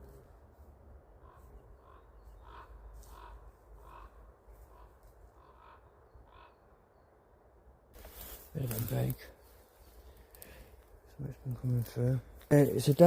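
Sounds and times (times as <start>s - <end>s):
raven giving harsh calls: 1.2s - 6.7s.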